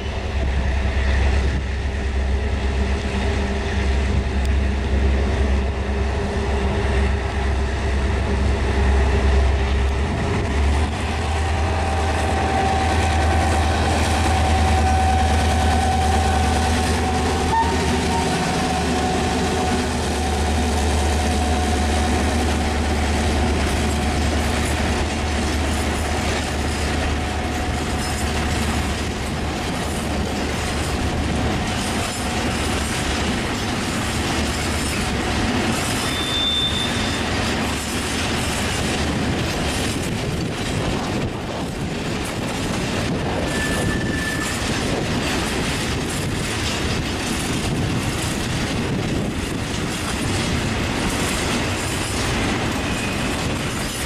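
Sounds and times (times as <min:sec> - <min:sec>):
train wheels clicking over rail joints: 0:00.0 - 0:54.0
high wheel squeals: 0:36.0 - 0:37.4, 0:43.4 - 0:44.7.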